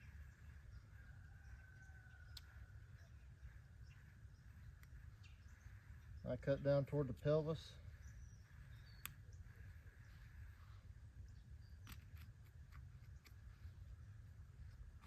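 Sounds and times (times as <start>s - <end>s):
soft clicks: 2.2s - 2.6s, 4.7s - 5.0s, 8.9s - 9.4s, 11.8s - 13.5s.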